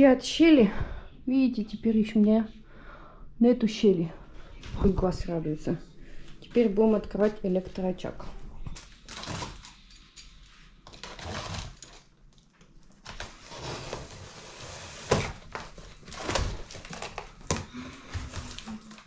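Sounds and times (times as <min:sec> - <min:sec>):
packaging rustling: 0:08.8 - 0:19.0.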